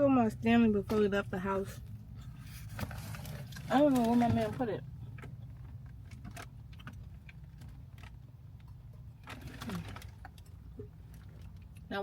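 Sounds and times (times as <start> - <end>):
low cabin hum: 0.0 - 12.0
clicks and rustles of rummaging: 2.2 - 11.7.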